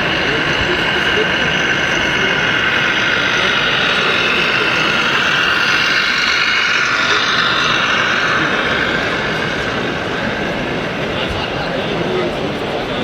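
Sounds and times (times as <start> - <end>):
high whine: 0.0 - 13.0
model truck engine noise: 0.0 - 13.0.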